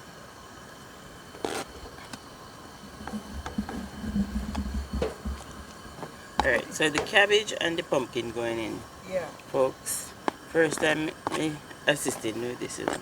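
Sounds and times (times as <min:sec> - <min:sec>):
light knocks and clicks: 0:04.4 - 0:07.2.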